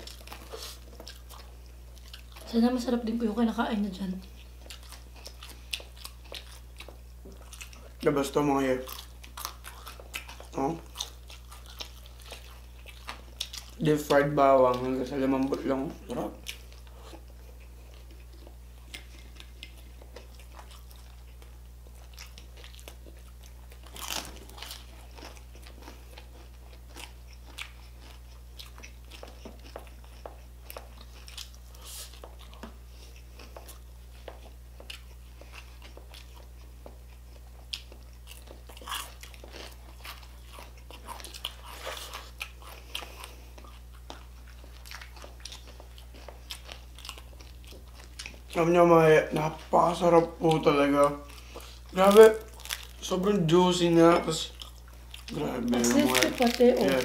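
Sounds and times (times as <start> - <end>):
crunching and chewing food: 0.0 - 57.0
faint low hum: 0.0 - 57.0.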